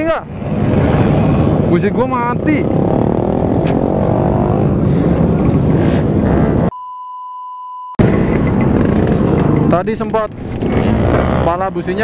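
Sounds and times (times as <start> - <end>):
two-stroke motorcycle riding: 0.0 - 6.7, 8.0 - 12.0
electronic beep tone: 6.7 - 8.0.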